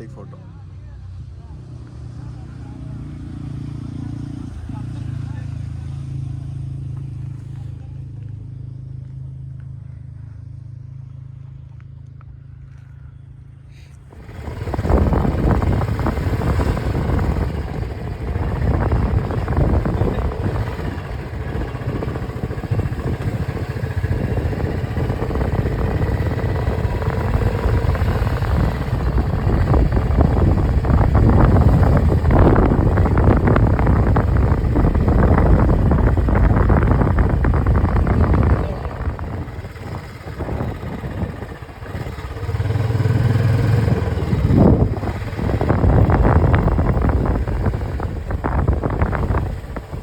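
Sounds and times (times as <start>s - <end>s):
motorcycle engine: 1.1s - 12.9s, 14.0s - 50.0s
wind rumble on microphone: 14.0s - 50.0s.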